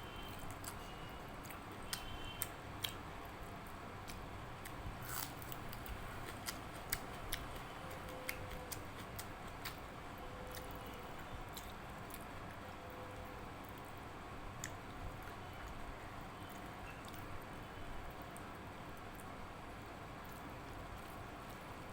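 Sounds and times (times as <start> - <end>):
faint steady hum: 0.0 - 21.9
person chewing food: 0.2 - 3.0, 3.6 - 9.9, 10.5 - 12.6.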